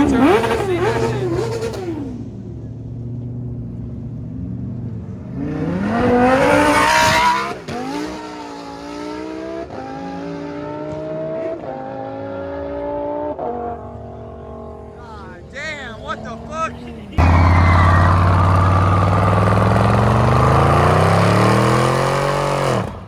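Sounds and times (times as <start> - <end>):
car engine revving: 0.0 - 23.0
tyre squeal: 16.7 - 20.4.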